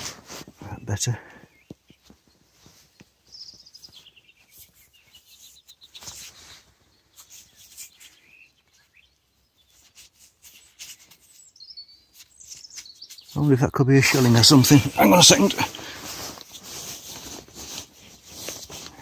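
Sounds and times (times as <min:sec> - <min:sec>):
birds chirping: 0:00.4 - 0:09.9, 0:10.6 - 0:16.0
soft clicks and rustles: 0:16.0 - 0:19.0.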